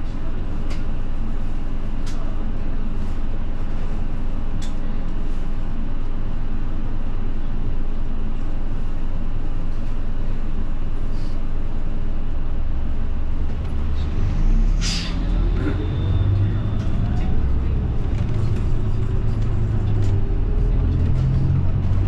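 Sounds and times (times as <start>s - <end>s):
bus engine drone: 0.0s - 22.0s
road noise: 12.6s - 22.0s.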